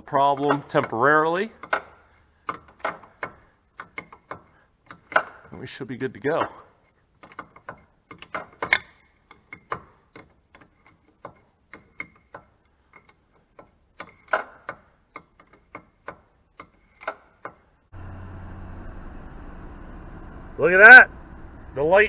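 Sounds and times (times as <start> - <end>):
sharp clicks and light knocks: 0.3 - 5.6, 6.3 - 17.8
car engine starting and running: 17.9 - 22.0.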